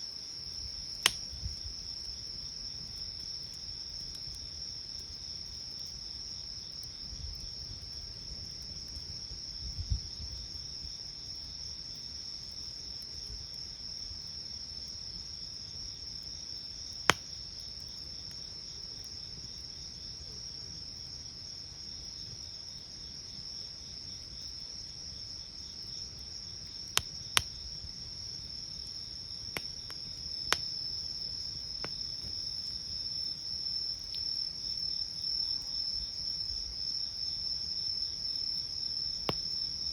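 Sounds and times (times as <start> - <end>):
crickets trilling: 0.0 - 39.9
campfire popping: 0.3 - 9.3, 26.7 - 34.4, 39.2 - 39.9.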